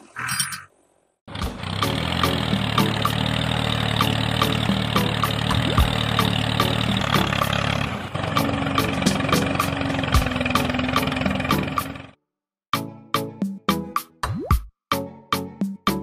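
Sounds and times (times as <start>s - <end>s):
regular ticking: 1.4s - 7.8s.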